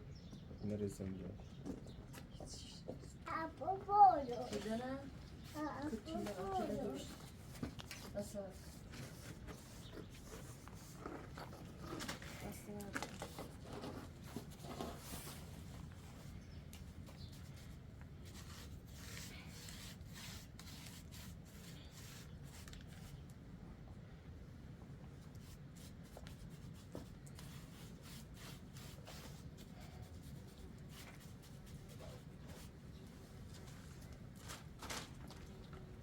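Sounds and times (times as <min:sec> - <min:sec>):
scratching and clicking of objects: 0:04.4 - 0:16.0.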